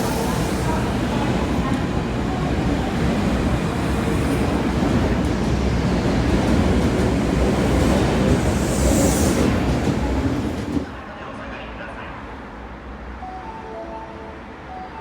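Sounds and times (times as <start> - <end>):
train wheels rumbling: 0.0 - 11.0.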